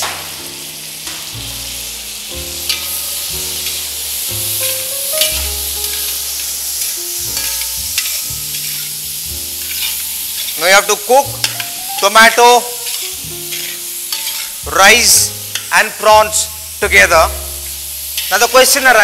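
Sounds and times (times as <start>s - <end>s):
rice and prawns sizzling in pan: 0.0s - 19.0s
metal spatula scraping pan: 2.6s - 3.8s, 6.8s - 10.7s, 12.8s - 14.6s.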